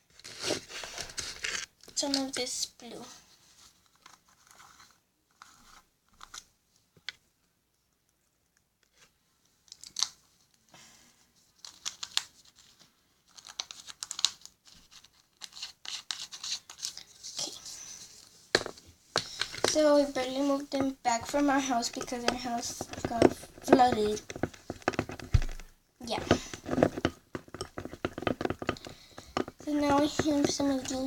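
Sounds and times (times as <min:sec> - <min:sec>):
plastic packaging rustling: 0:00.0 - 0:02.4, 0:11.5 - 0:31.0.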